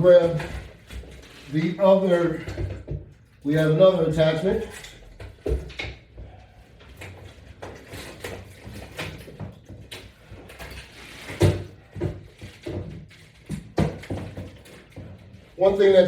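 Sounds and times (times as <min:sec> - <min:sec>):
knocks and clicks of attachments: 0:07.0 - 0:15.4.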